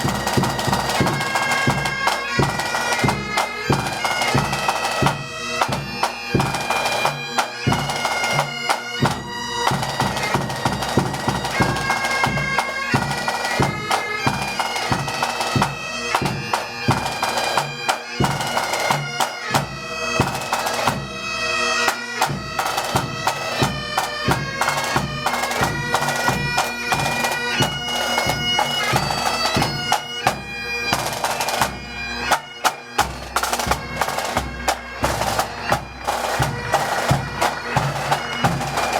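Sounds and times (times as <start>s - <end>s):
snare and bass drums: 0.0s - 21.1s, 22.2s - 38.9s
bagpipes playing a march: 0.0s - 38.9s.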